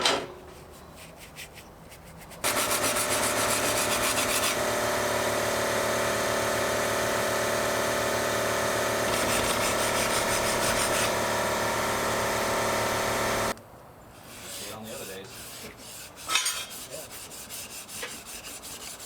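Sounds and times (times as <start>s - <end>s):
electric power tool motor hum: 2.4s - 13.6s.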